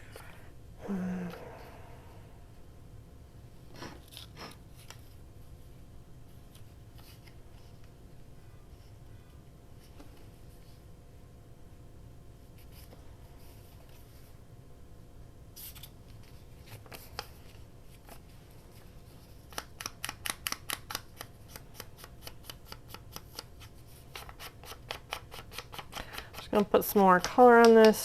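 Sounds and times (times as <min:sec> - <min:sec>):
faint steady hum: 0:00.0 - 0:28.0
scissors snipping paper: 0:19.5 - 0:28.0.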